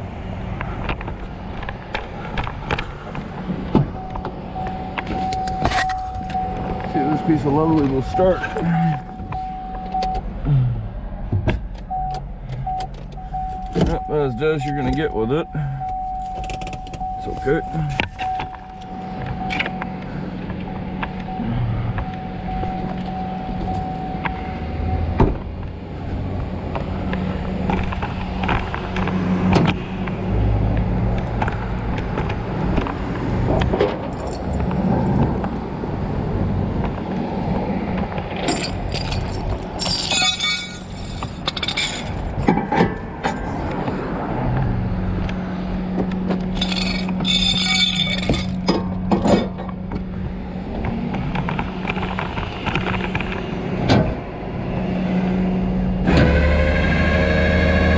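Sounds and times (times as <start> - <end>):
vehicle engine humming: 0.0 - 57.9
jingling clinking rattles: 38.4 - 42.5, 46.4 - 49.6.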